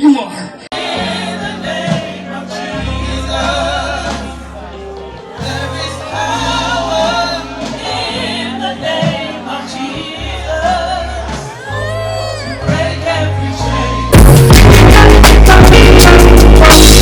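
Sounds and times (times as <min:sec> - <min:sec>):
gospel singing: 0:00.7 - 0:17.0
loud music with strong beat: 0:14.1 - 0:17.0.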